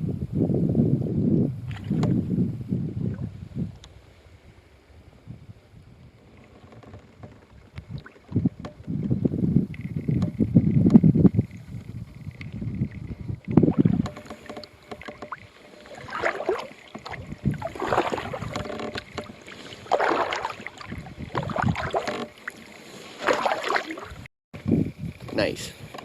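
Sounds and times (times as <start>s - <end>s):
kayak paddle splashing: 6.2s - 9.0s, 11.4s - 24.3s.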